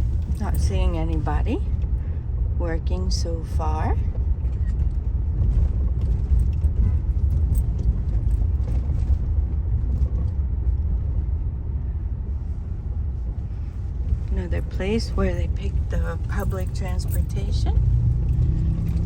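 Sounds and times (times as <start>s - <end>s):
car engine and tyre rumble: 0.0s - 19.0s.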